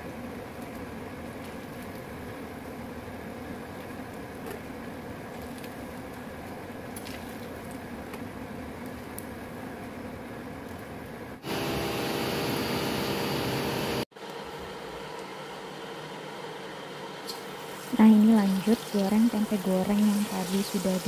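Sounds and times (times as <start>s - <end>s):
meat sizzling in oil: 17.3s - 21.0s.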